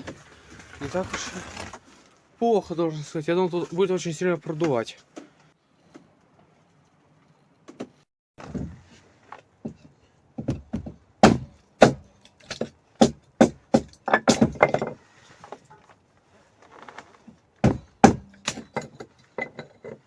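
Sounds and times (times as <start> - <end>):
wooden knocks and cracks: 7.7 - 16.0, 16.6 - 20.0.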